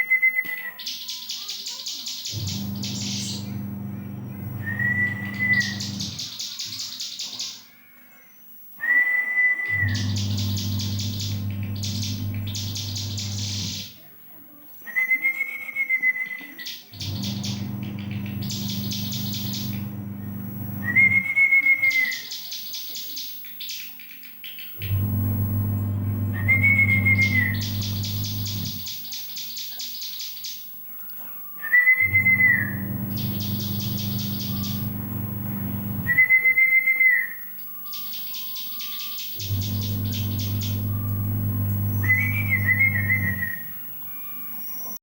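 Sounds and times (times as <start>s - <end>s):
bird singing whistle and trill: 2.3s - 3.6s, 4.5s - 7.1s, 8.8s - 13.9s, 14.9s - 22.7s, 26.1s - 29.1s, 31.6s - 43.8s
steady low hum: 2.4s - 6.2s, 9.7s - 13.8s, 17.0s - 21.3s, 24.8s - 28.8s, 32.0s - 36.3s, 39.4s - 44.0s.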